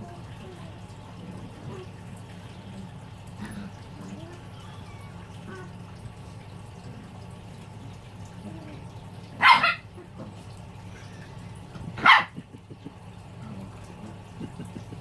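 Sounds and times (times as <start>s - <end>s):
puppy barking: 9.4s - 10.1s, 12.0s - 12.4s.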